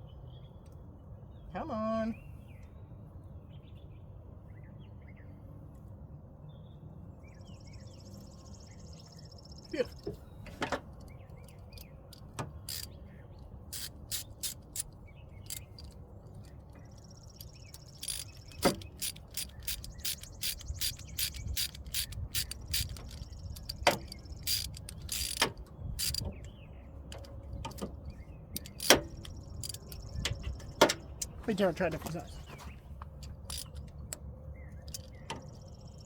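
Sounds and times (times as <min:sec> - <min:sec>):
hand tools clicking on metal: 0:10.5 - 0:13.0, 0:13.7 - 0:34.2, 0:34.9 - 0:35.6.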